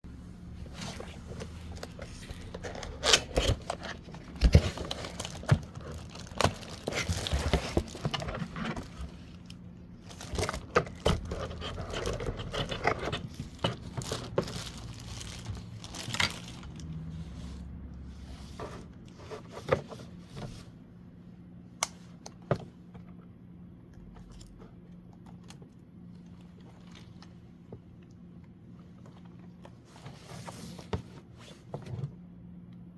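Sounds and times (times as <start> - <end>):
plastic packaging rustling: 0.7 - 17.2.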